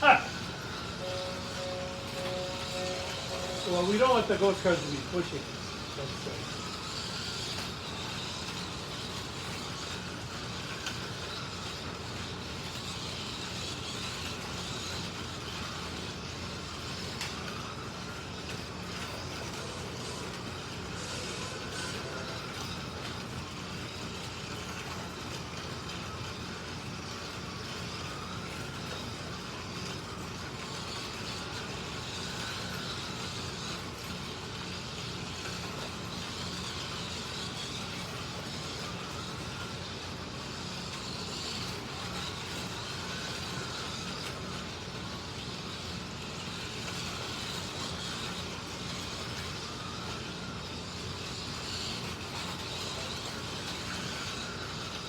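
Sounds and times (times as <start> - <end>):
slot car motors whining: 0.0 - 55.0.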